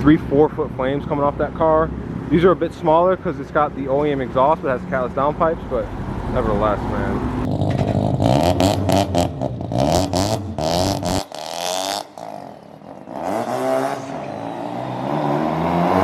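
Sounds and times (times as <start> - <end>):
car engine revving: 5.8 - 16.0
exhaust pops and crackles: 7.4 - 13.0.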